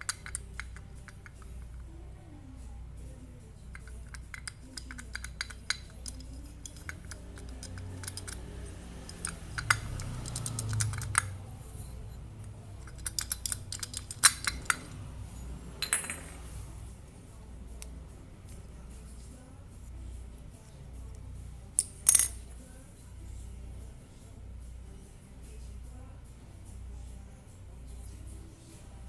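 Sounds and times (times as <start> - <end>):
small hard parts clinking: 0.0 - 1.9, 3.7 - 16.6, 21.8 - 22.6
steady low hum: 0.0 - 29.0.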